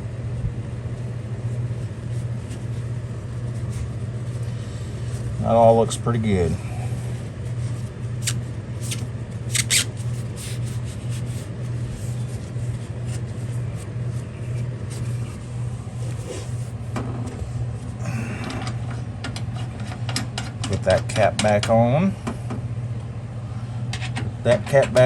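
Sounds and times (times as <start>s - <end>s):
low pulsing motor hum: 0.0s - 25.0s
handling clicks and rubbing: 8.2s - 11.8s.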